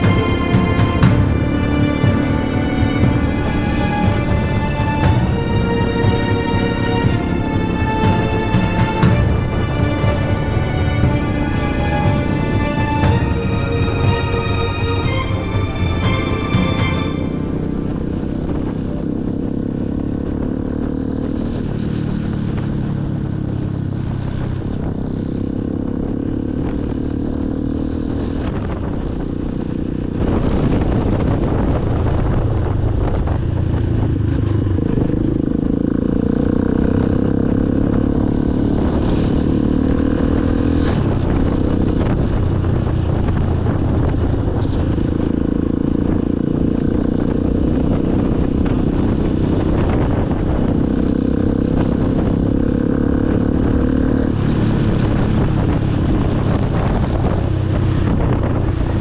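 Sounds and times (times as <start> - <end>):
motorcycle engine running: 32.3 - 59.0.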